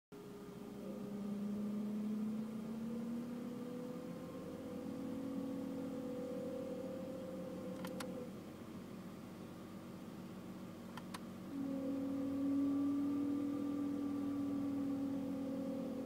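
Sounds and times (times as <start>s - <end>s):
blower fan two-tone whine: 0.2s - 16.0s
clicks: 7.7s - 8.2s, 10.9s - 11.3s.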